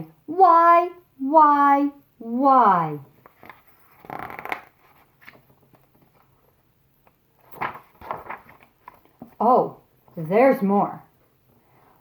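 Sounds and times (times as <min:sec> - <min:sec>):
book pages rustling: 0:03.1 - 0:09.5.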